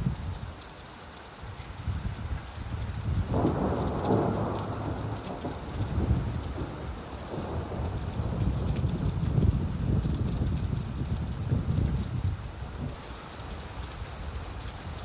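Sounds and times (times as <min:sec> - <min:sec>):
rainfall: 0:00.0 - 0:15.0
thunder rumbling: 0:03.0 - 0:13.0.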